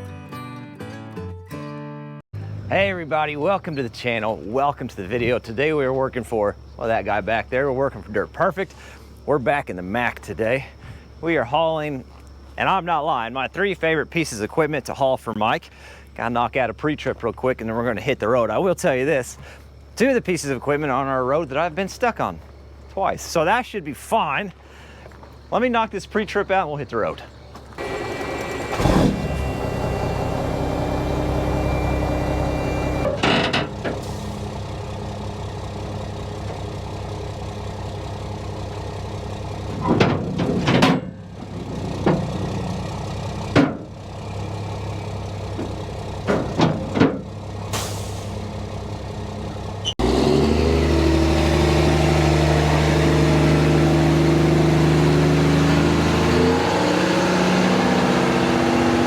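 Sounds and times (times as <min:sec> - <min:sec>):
diesel truck engine idling: 0:02.4 - 0:59.0
knocks and clunks: 0:32.9 - 0:34.4, 0:39.7 - 0:44.0, 0:45.5 - 0:47.9.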